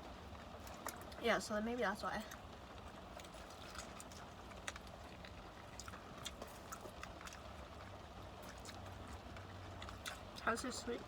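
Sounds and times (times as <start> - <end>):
chewing crunches: 2.2 - 10.8.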